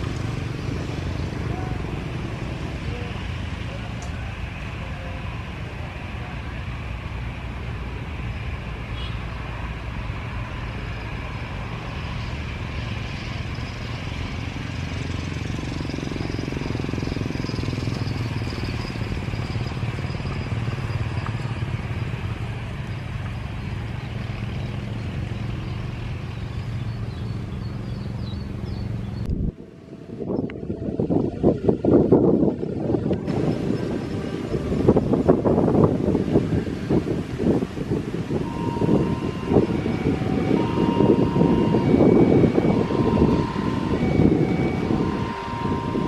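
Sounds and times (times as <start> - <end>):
jet engines rumbling: 0.0 - 46.0
wind buffeting microphone: 26.7 - 46.0
jet engine high whine: 29.2 - 46.0.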